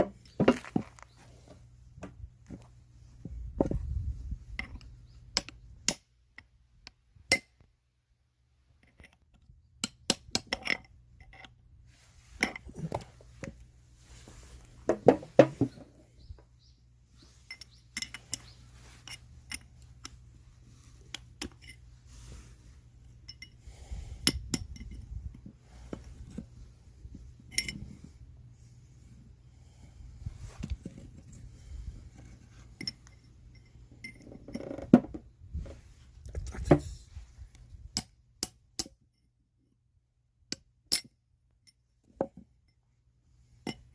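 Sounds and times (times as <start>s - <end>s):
metal parts and tools clinking: 8.8s - 11.6s, 17.4s - 20.3s, 21.1s - 21.9s, 23.1s - 23.6s, 24.2s - 25.4s, 27.4s - 28.0s, 32.2s - 34.8s, 43.6s - 43.9s.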